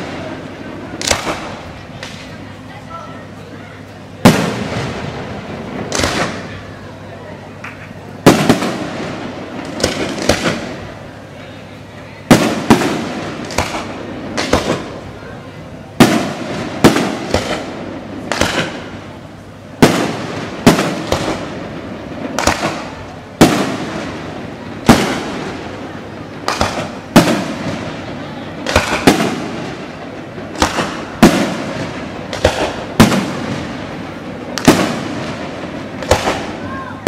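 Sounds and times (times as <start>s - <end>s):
fireworks bursting with rumble: 0.0s - 37.0s.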